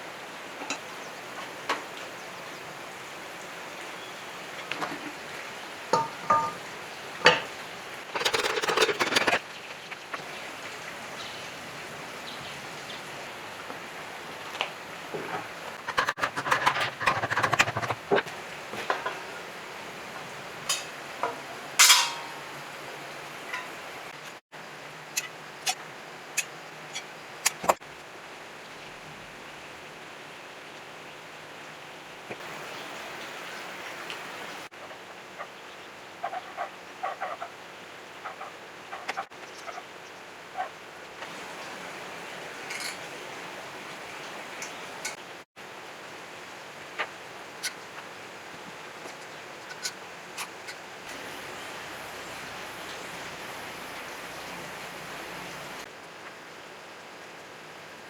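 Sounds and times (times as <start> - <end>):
steady background hiss: 0.0 - 8.6, 17.9 - 58.0
sharp knocks with ringing: 6.0 - 6.6.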